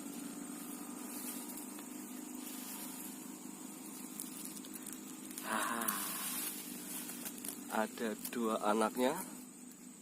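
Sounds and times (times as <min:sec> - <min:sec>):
high-pitched hiss: 0:00.0 - 0:10.0
low even hum: 0:00.0 - 0:10.0.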